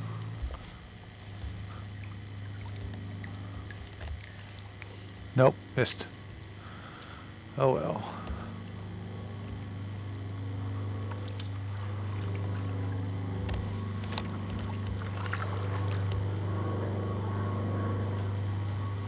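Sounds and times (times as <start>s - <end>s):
low motor hum: 0.0s - 19.0s
water splashes and drips: 2.0s - 4.9s.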